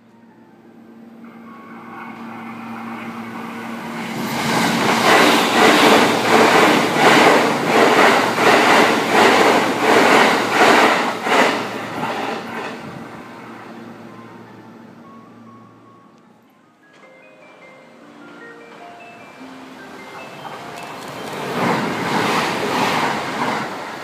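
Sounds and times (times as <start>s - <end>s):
electric train passing: 0.0s - 24.0s
wheels clattering on rails: 1.3s - 13.2s, 19.7s - 24.0s.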